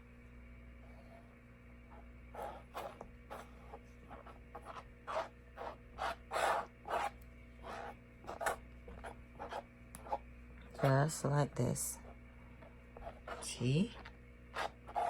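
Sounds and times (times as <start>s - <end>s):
paintbrush strokes on plastic cup: 11.9s - 15.0s.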